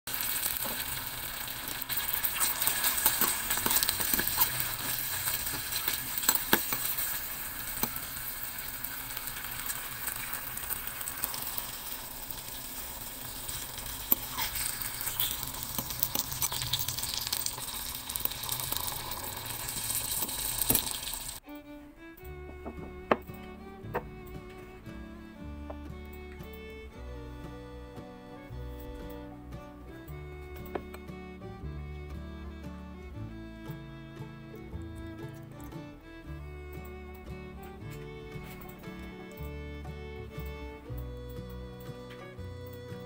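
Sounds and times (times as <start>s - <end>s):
hot oil sizzling and crackling: 0.1s - 21.4s.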